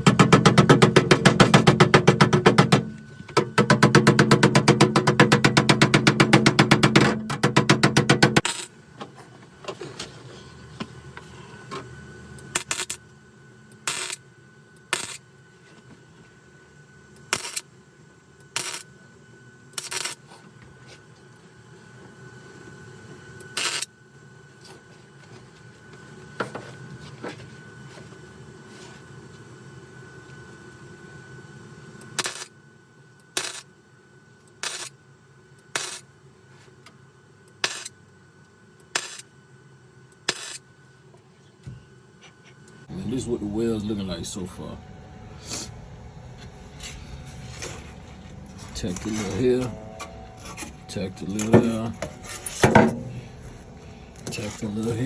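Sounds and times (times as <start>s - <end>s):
welding crackle bursts: 8.4s - 8.7s, 12.6s - 13.0s, 13.9s - 14.2s, 14.9s - 15.2s, 17.3s - 17.6s, 18.5s - 18.8s, 19.8s - 20.2s, 23.6s - 23.9s, 32.2s - 32.5s, 33.4s - 33.7s, 34.6s - 34.9s, 35.8s - 36.0s, 37.6s - 37.9s, 38.9s - 39.2s, 40.3s - 40.6s.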